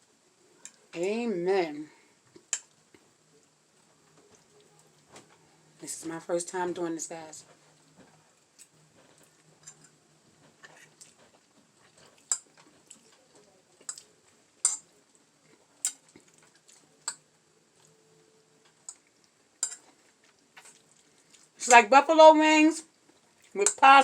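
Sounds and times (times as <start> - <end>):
metal utensil clinking on dish: 19.6 - 19.9.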